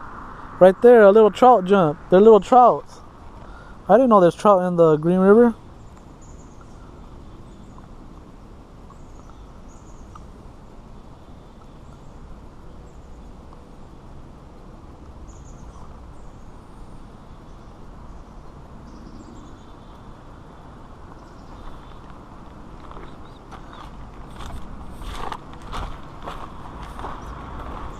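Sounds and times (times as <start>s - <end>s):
outdoor background noise: 0.0s - 27.9s
high bird chirps: 23.0s - 24.0s.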